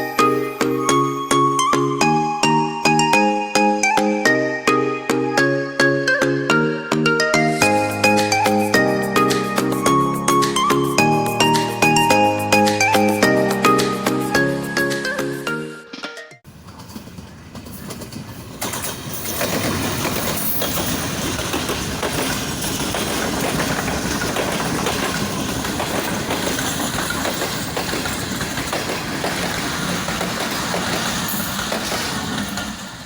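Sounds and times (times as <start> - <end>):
passenger train running on track: 0.0 - 4.0, 7.6 - 15.2, 16.5 - 33.0
train wheels knocking: 16.5 - 33.0.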